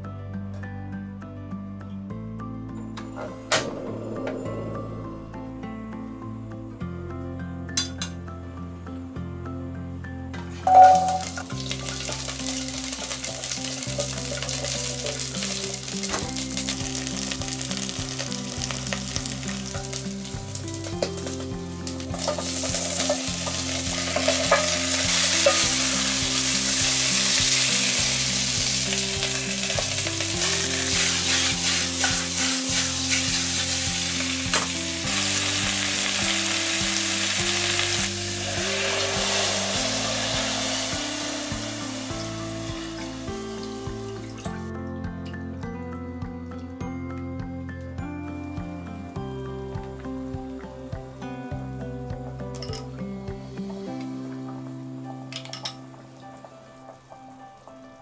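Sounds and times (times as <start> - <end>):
meat sizzling in a pot: 10.6 - 44.7.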